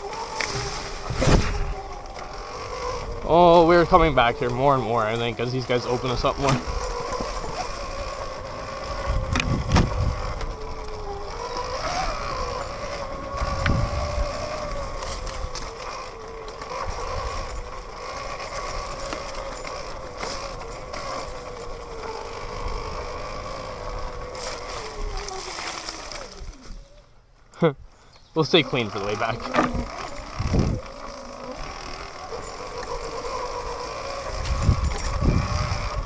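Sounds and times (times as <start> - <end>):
electric motorbike motor whining: 0.0 - 36.0
low thuds: 9.0 - 10.6.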